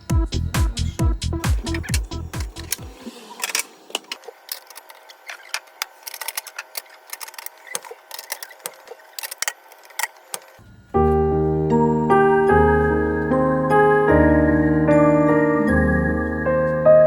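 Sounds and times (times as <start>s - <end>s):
small hard objects clattering: 1.4s - 10.6s.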